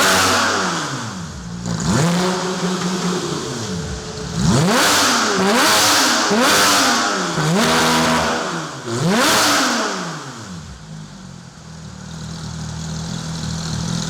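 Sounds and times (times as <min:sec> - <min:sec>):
car engine idling: 0:00.0 - 0:08.1, 0:10.6 - 0:14.0
car engine revving: 0:00.0 - 0:14.0.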